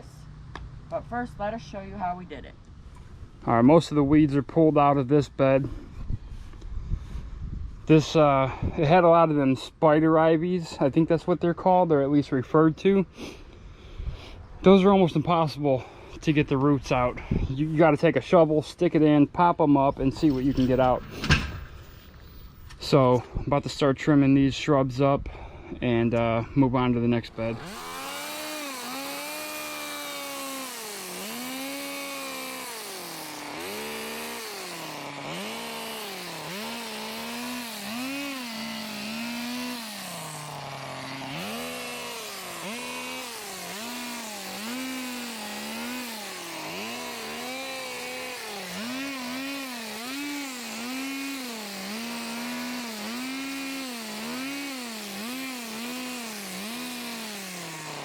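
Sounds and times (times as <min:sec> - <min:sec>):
hedge trimmer engine revving: 0:27.0 - 0:58.0.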